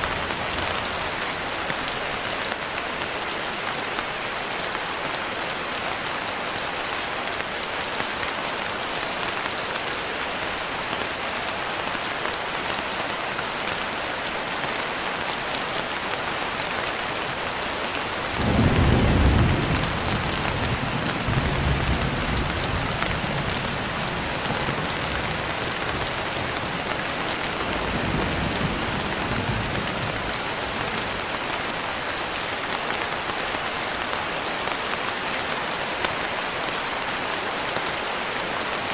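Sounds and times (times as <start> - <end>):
heavy rain hissing: 3.7 - 38.9
thunder rumbling: 18.4 - 26.8.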